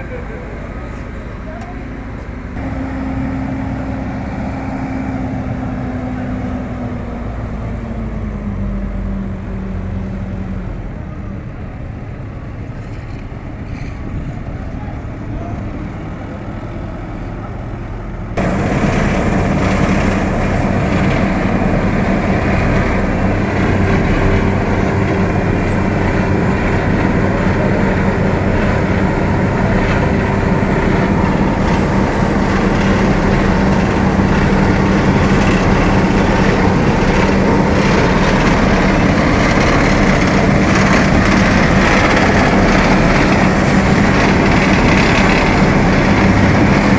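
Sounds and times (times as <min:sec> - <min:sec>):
paver engine running: 0:00.0 - 0:46.9
mechanical churn: 0:18.4 - 0:46.9.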